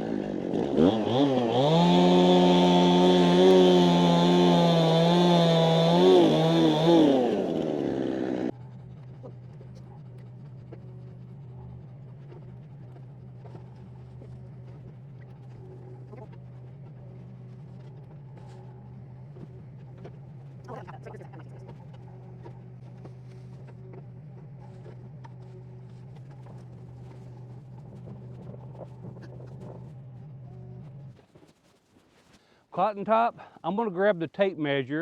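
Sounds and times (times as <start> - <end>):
chainsaw running at high revs: 0.0 - 8.6
low engine hum: 0.0 - 31.2.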